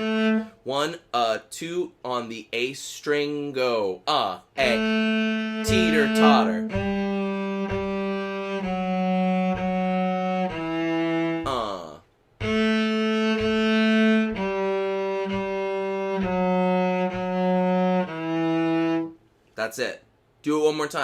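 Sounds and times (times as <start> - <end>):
cello bowed in long notes: 0.0 - 0.5, 4.6 - 11.8, 12.4 - 19.2.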